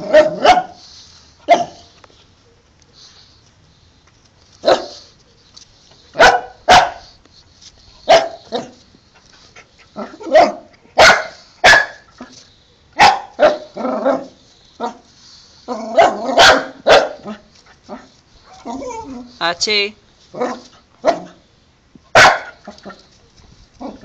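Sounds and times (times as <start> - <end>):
dog barking: 0.0 - 0.8, 1.5 - 1.9, 4.6 - 5.0, 6.2 - 7.1, 8.1 - 8.7, 10.2 - 12.0, 13.0 - 15.0, 15.9 - 17.4, 20.4 - 21.4, 22.1 - 22.7.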